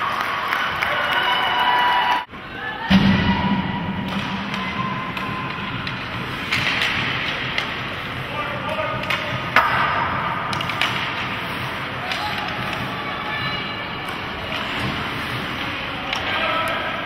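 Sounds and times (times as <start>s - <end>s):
arena crowd noise: 0.0s - 17.0s
hockey sticks and puck clacking: 4.0s - 17.0s.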